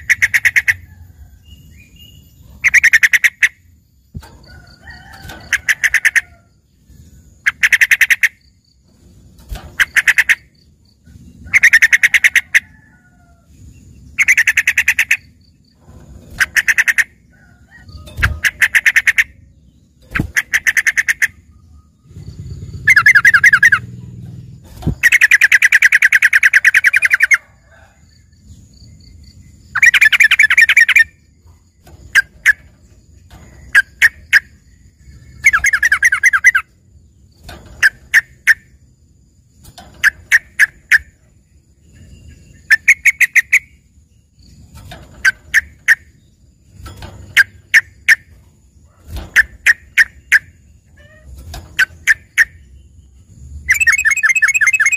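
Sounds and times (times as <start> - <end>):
bird singing rattling trills: 0.0 - 54.9
quick sharp bird notes: 22.1 - 27.2, 53.6 - 54.9.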